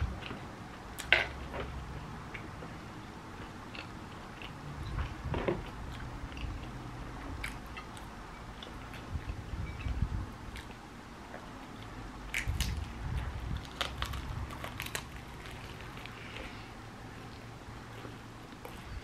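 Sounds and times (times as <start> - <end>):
chewing crunchy sandwich: 3.4 - 18.9.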